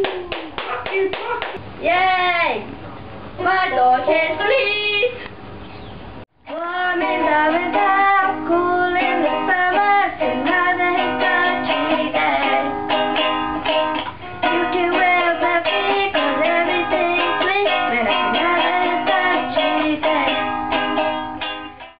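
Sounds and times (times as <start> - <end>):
person singing: 6.4 - 12.8, 14.4 - 21.0
ukulele strumming chords: 6.4 - 22.0.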